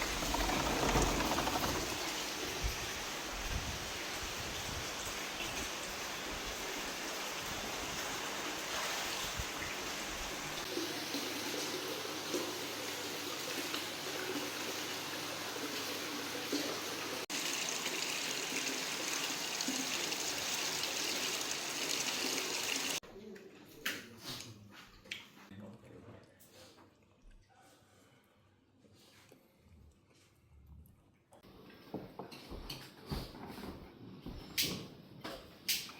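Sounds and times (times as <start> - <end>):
running water: 0.0 - 23.0.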